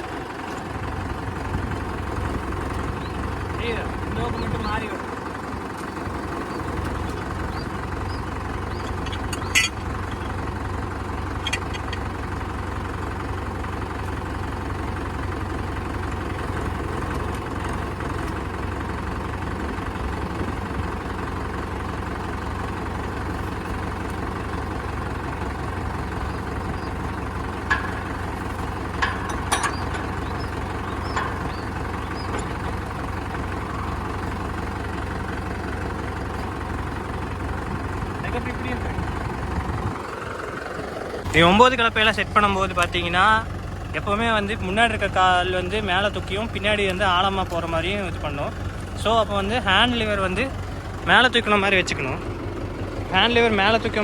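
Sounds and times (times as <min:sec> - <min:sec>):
tractor diesel engine running: 0:00.0 - 0:54.0
sharp metal clanks: 0:08.7 - 0:10.3, 0:11.4 - 0:12.0, 0:27.6 - 0:34.0.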